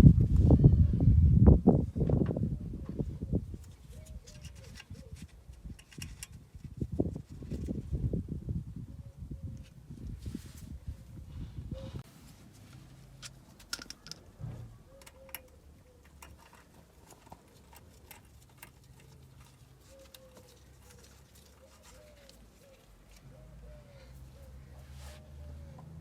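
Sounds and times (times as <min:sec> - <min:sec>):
dove cooing: 0:02.6 - 0:05.3, 0:11.7 - 0:12.1, 0:14.0 - 0:26.0.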